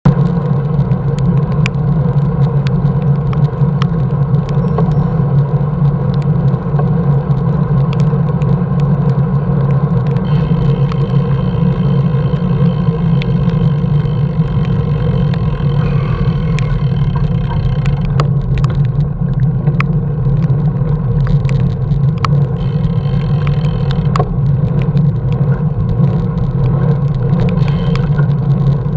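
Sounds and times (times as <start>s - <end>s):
engine and road drone: 0.1s - 28.9s
sharp ticks and clicks: 0.1s - 28.9s.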